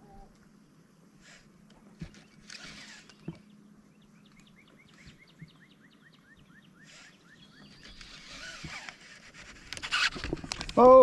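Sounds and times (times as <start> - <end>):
bird chirping: 1.9 - 8.9.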